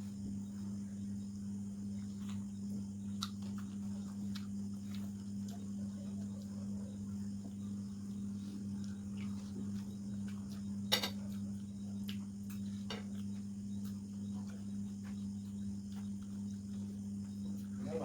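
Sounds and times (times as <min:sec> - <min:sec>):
steady low hum: 0:00.0 - 0:18.0
chewing clicks and smacks: 0:02.0 - 0:06.6, 0:08.8 - 0:17.8.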